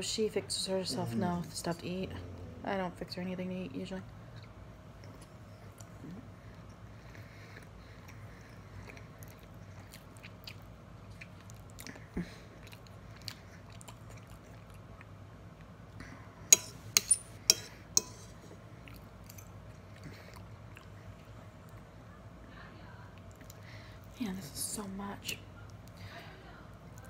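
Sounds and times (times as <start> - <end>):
person chewing soft food: 4.3 - 16.0, 18.3 - 22.0
fork clinking on plate: 16.5 - 18.3.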